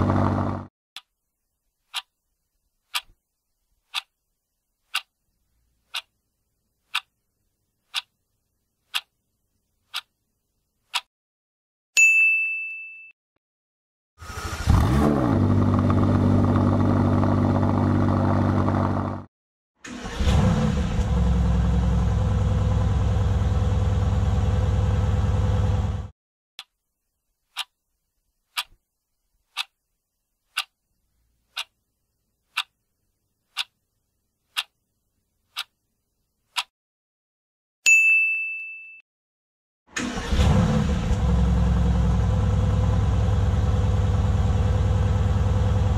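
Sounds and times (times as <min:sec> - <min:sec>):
car engine revving: 0:00.0 - 0:00.7, 0:14.2 - 0:19.3, 0:19.9 - 0:26.1, 0:40.0 - 0:45.9.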